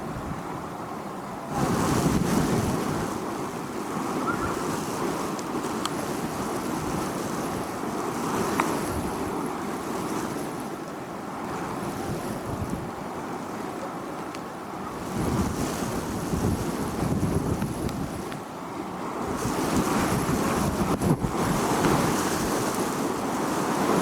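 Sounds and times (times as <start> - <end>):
wind buffeting microphone: 1.5 - 9.4, 14.9 - 18.4, 19.2 - 24.0.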